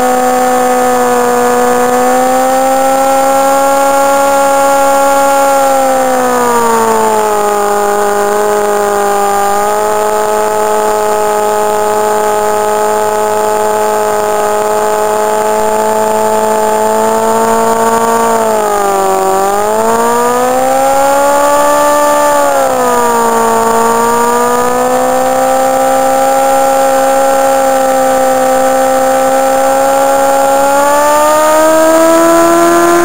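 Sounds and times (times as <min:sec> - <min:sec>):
motorcycle engine revving high: 0:00.0 - 0:33.0
tire spinning on pavement: 0:00.0 - 0:33.0.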